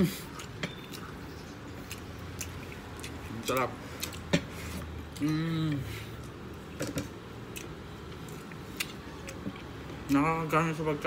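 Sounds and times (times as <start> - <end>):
man chewing food: 0.0 - 10.2
man humming mmm: 5.2 - 5.9.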